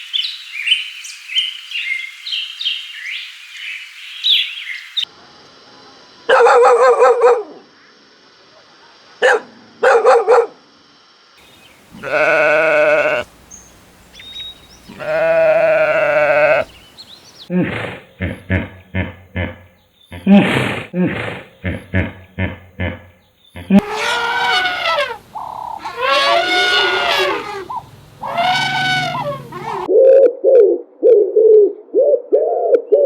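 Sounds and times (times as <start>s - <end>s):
chicks cheeping: 11.5s - 17.5s, 23.5s - 29.9s
goats bleating: 11.8s - 16.8s, 23.7s - 29.9s.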